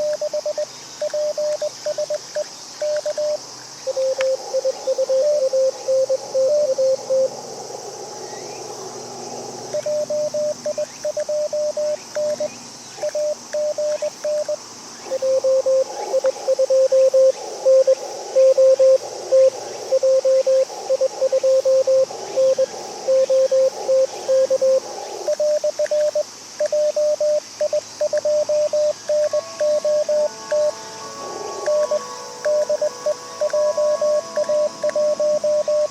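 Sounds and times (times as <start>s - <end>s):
morse code tones: 0.0s - 2.2s, 9.8s - 35.9s
radio band noise hiss: 0.0s - 35.9s.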